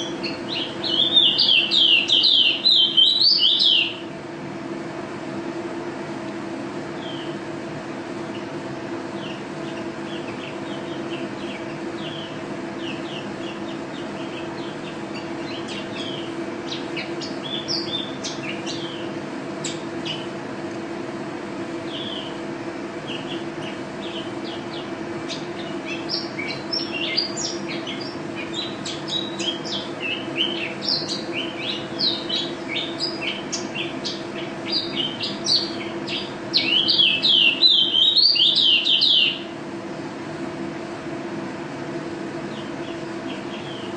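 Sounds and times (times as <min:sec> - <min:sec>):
small bird twittering: 0:00.0 - 0:04.0, 0:07.0 - 0:07.4, 0:09.2 - 0:20.3, 0:21.8 - 0:22.4, 0:23.0 - 0:39.4, 0:42.5 - 0:43.9
steady low hum: 0:00.0 - 0:43.9.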